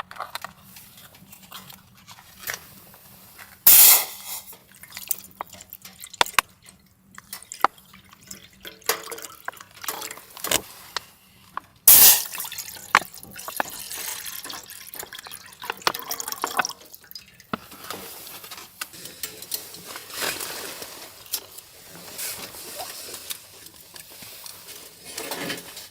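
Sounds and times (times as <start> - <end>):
water dripping and splashing: 4.6 - 10.6, 11.9 - 20.3.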